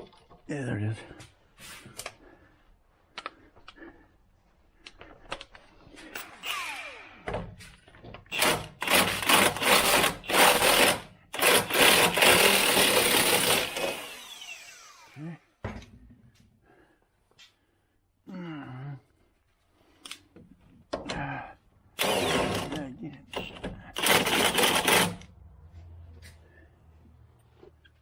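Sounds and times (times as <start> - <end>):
handheld power tool running: 6.2 - 7.2, 8.3 - 15.2, 22.0 - 25.3.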